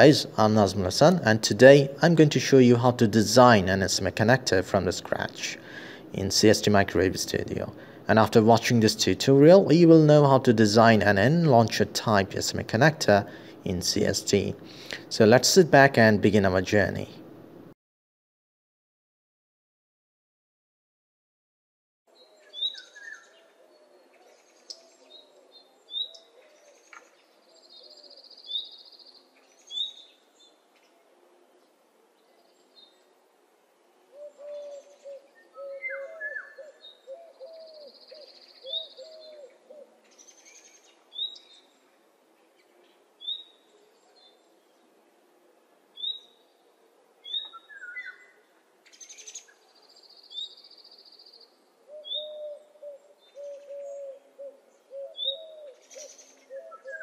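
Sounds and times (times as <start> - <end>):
birds chirping: 0.0 - 17.3, 22.2 - 31.0, 34.1 - 45.0, 45.9 - 57.0
low wavering bird calls: 22.1 - 31.6, 34.0 - 41.9, 46.0 - 57.0.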